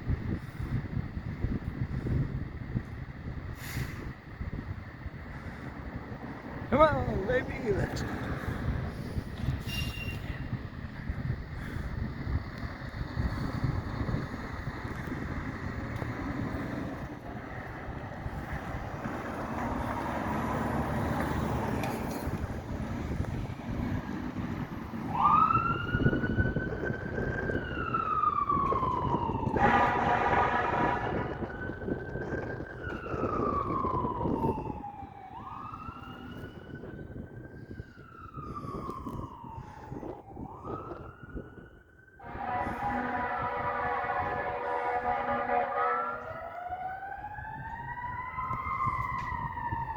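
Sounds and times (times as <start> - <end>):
truck engine: 0.0 - 25.3, 42.2 - 47.4
fire truck siren wailing: 0.0 - 49.9
low rumble of road vehicles: 0.0 - 49.9
wind buffeting microphone: 0.0 - 49.9.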